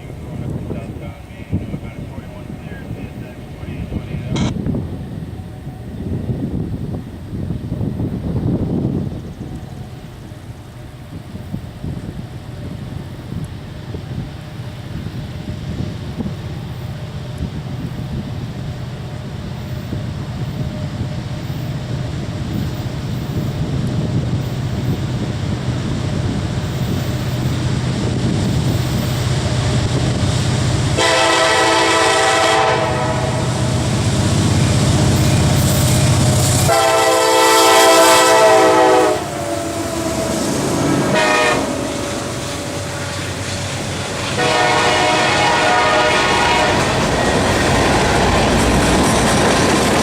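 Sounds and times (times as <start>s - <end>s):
diesel locomotive engine rumble: 0.0s - 50.0s
train air horn blasts: 30.9s - 33.7s, 36.4s - 43.2s, 44.2s - 47.2s.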